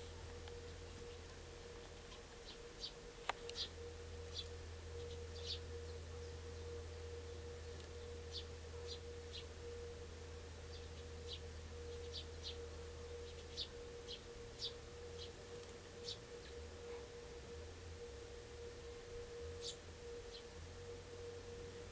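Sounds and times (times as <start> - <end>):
constant mid-pitched tone: 0.0 - 21.9
steady low hum: 0.0 - 21.9
high bird chirps: 2.4 - 6.6, 7.6 - 9.5, 10.7 - 12.6, 13.2 - 16.6, 19.5 - 20.5.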